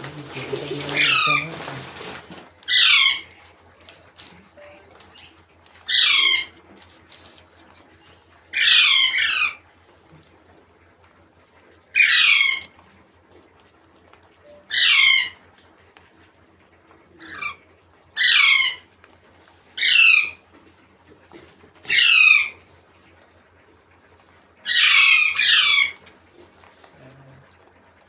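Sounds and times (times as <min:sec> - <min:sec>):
parrot harsh calls: 0:00.7 - 0:02.1, 0:02.7 - 0:03.4, 0:05.9 - 0:06.6, 0:08.5 - 0:09.6, 0:11.9 - 0:12.7, 0:14.5 - 0:15.4, 0:17.2 - 0:17.6, 0:18.2 - 0:18.9, 0:19.8 - 0:20.4, 0:21.9 - 0:22.6, 0:24.6 - 0:26.0.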